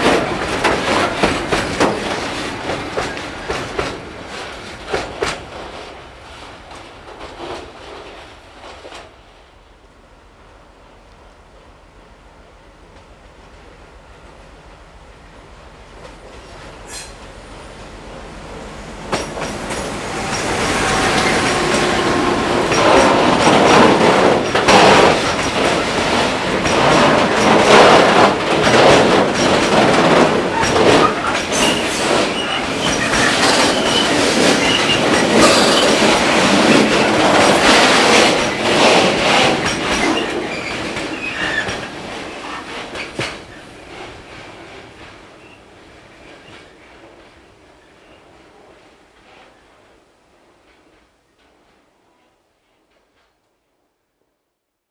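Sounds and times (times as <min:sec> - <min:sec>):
wheels clattering over rail joints: 0:00.0 - 0:05.9, 0:19.1 - 0:44.0
freight train rolling past: 0:00.0 - 0:51.8
wheels squealing on rails: 0:16.4 - 0:17.3, 0:19.1 - 0:24.6, 0:30.4 - 0:44.0.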